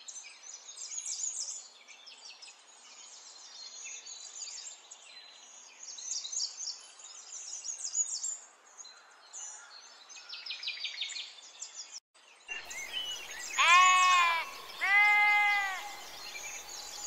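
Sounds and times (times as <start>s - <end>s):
small birds chirping: 0.3s - 17.0s
faint background hiss: 12.5s - 17.0s.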